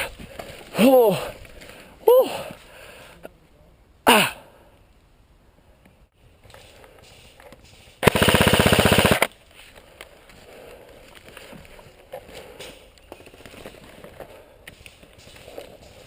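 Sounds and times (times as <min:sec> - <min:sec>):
airsoft gun full-auto burst: 0:08.0 - 0:09.3.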